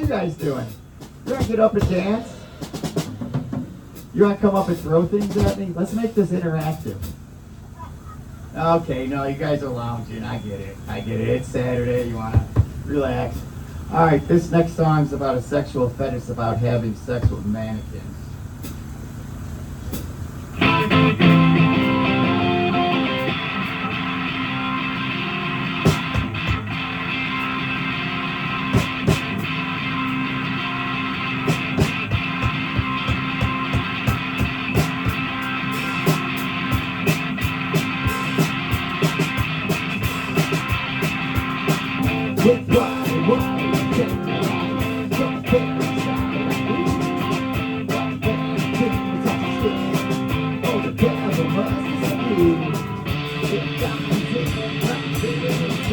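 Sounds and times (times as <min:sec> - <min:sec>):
rock guitar strumming chords: 0:20.4 - 0:55.9.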